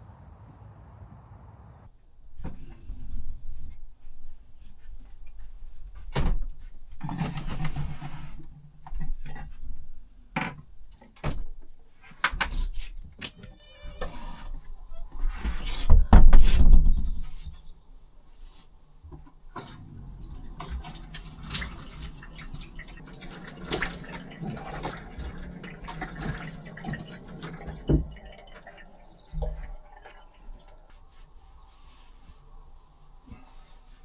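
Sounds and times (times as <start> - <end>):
rustling: 14.5 - 34.0.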